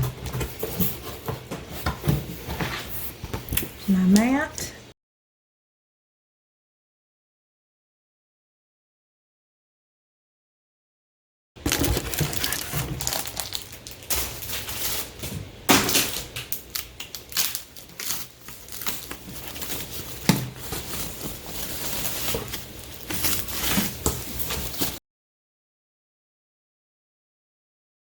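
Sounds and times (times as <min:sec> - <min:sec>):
packaging crinkling and rustling: 0:11.6 - 0:25.0.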